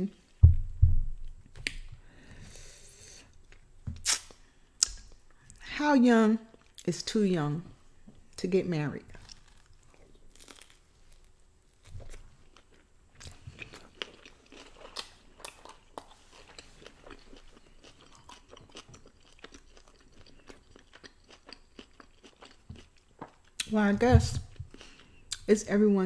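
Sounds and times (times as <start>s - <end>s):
chewing and crunching food: 9.1s - 25.5s.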